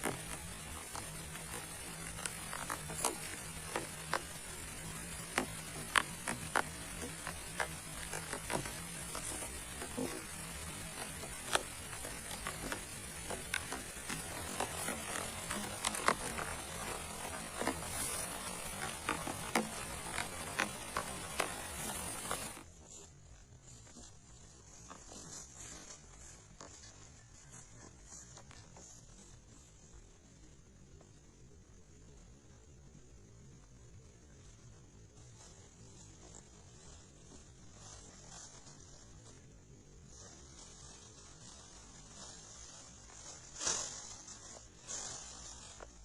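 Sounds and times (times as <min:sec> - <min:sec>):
rain falling: 0:00.0 - 0:22.6
raindrops tapping a surface: 0:00.0 - 0:22.6.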